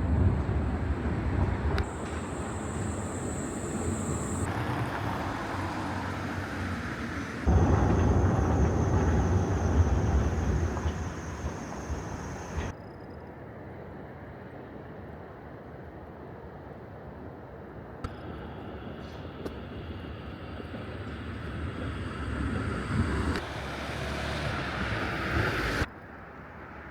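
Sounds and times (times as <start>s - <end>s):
passing vehicle low rumble: 0.0s - 12.7s, 19.2s - 25.9s
street ambience: 0.0s - 12.8s, 17.6s - 26.9s.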